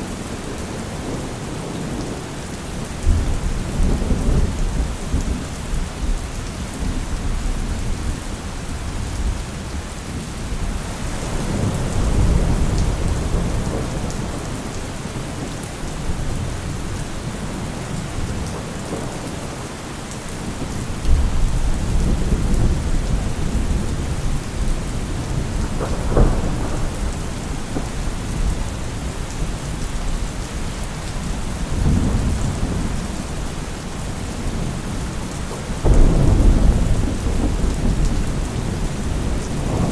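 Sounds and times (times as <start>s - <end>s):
heavy rain: 0.0s - 39.9s
rolling thunder: 10.6s - 19.2s, 20.4s - 39.9s
sharp thunder crack: 25.8s - 28.5s, 35.8s - 39.9s.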